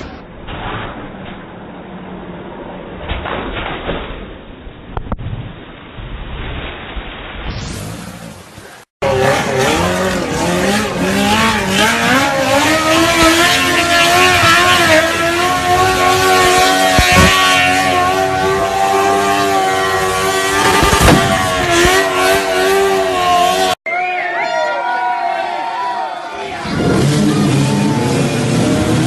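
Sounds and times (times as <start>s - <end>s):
vehicle engine at high revs: 7.6s - 23.8s, 26.6s - 29.0s.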